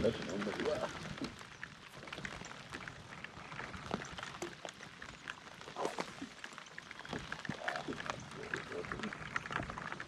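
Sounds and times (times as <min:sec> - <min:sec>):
light rain pattering: 0:00.0 - 0:10.0.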